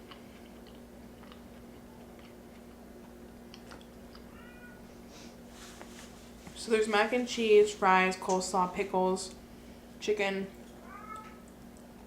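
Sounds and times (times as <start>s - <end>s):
chewing food: 0.0s - 4.4s
steady low hum: 0.0s - 12.0s
faint cat meow: 4.3s - 4.9s, 10.8s - 11.5s.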